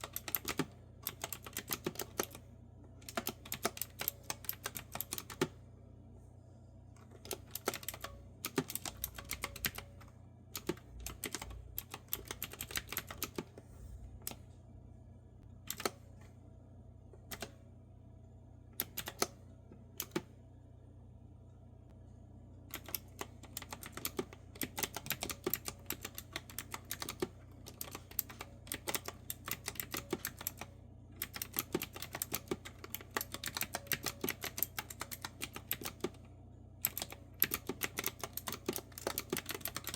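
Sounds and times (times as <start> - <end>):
typing on clicky keyboard: 0.0 - 2.4, 3.0 - 5.6, 7.1 - 10.0, 10.6 - 13.5, 18.8 - 19.3, 22.7 - 36.2, 36.8 - 39.9
faint low hum: 0.0 - 39.9.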